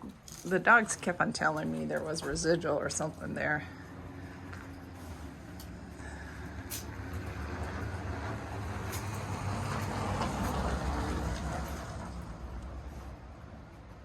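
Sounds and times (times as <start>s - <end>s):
vehicle driving past: 3.4s - 13.8s.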